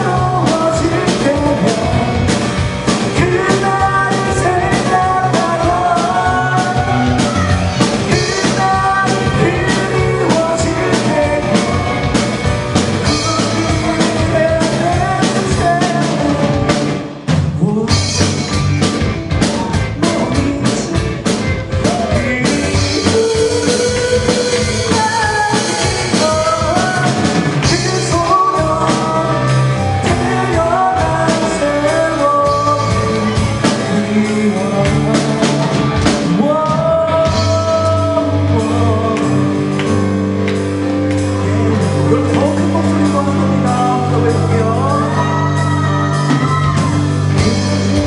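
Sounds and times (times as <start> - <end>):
drum kit: 0.0 - 48.0
person singing: 0.0 - 48.0
rock band playing live: 0.0 - 48.0.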